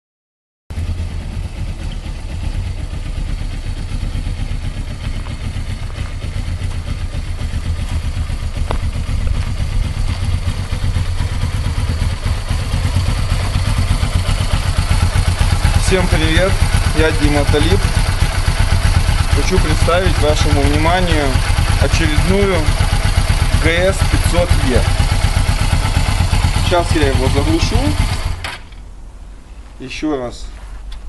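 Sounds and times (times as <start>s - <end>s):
motorcycle engine idling: 0.7s - 29.4s.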